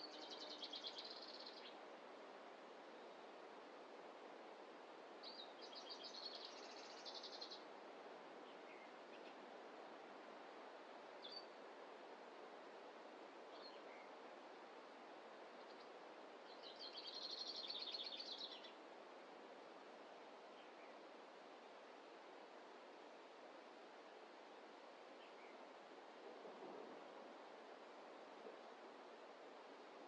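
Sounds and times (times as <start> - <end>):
faint outdoor background hiss: 0.0 - 30.0.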